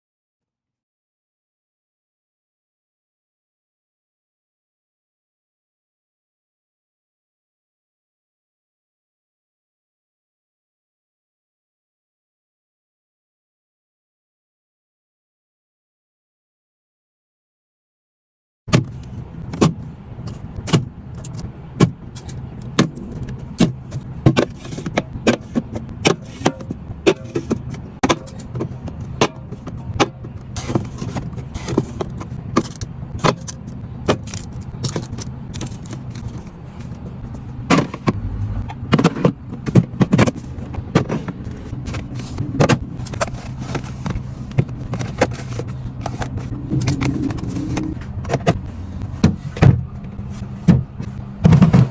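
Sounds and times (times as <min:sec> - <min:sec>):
clatter of food packages and containers: 0:18.7 - 0:51.9
steady low hum: 0:18.7 - 0:51.9.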